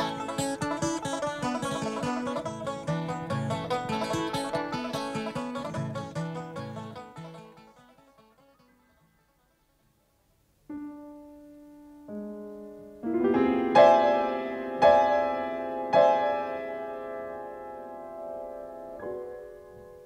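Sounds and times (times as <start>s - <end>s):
piano notes and chords: 10.7s - 20.0s.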